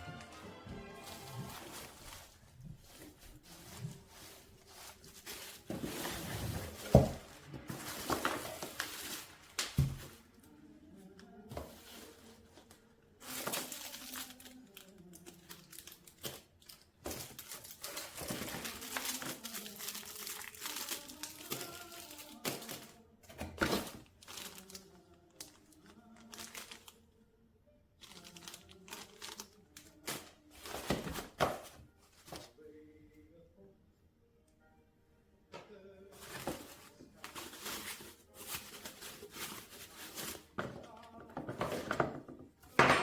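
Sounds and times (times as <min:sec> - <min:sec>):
packaging crinkling: 0:01.0 - 0:10.2, 0:13.2 - 0:23.0, 0:23.6 - 0:27.0, 0:28.0 - 0:32.5, 0:36.2 - 0:40.6.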